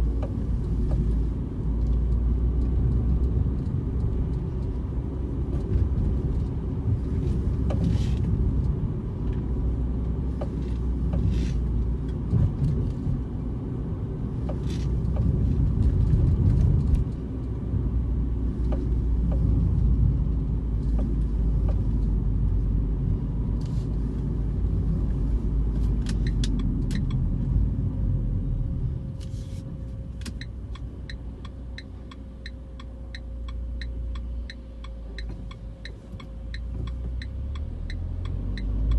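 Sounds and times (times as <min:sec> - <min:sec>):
car engine low rumble: 0:00.0 - 0:38.9.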